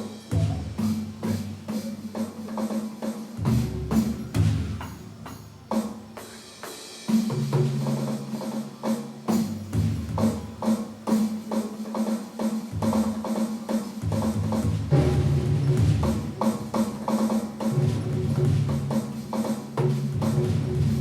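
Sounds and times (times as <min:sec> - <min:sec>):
tuned low drums played rapidly: 0:00.3 - 0:01.7, 0:14.0 - 0:21.0.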